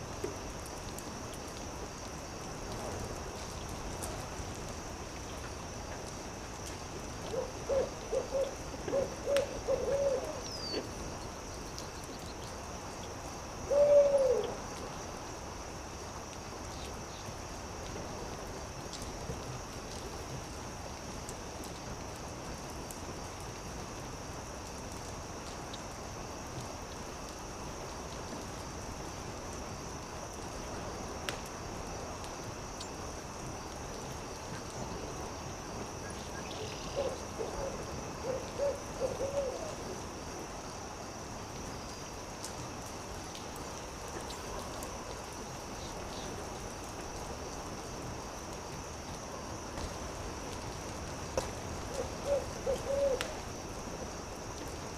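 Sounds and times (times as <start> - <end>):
steady high hiss: 0.0 - 54.9
owl hooting: 7.3 - 10.8, 13.7 - 14.6, 36.6 - 39.8, 52.0 - 53.3
campfire crackling and popping: 29.8 - 34.9.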